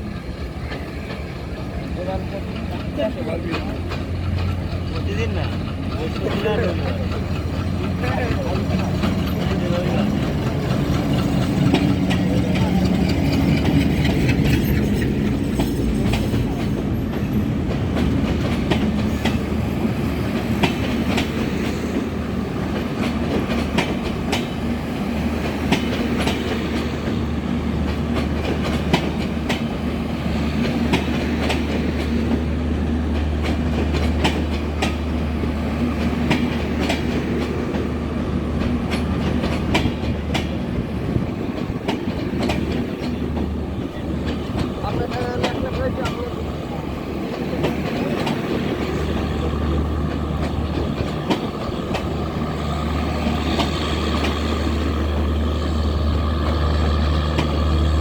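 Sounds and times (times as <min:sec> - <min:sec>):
train wheels clacking on rails: 0:00.0 - 0:58.0
low diesel engine drone: 0:51.8 - 0:58.0.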